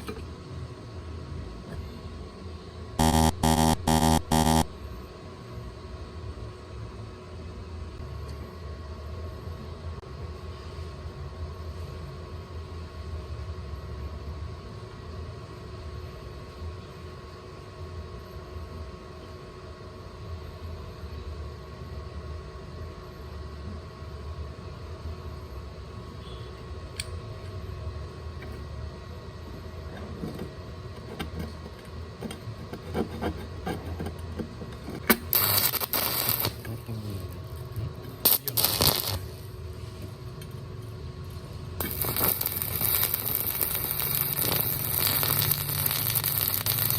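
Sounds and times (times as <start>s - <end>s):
steady low hum: 0.0s - 46.9s
welding arc crackling: 3.0s - 4.7s, 34.7s - 40.2s, 41.2s - 46.9s.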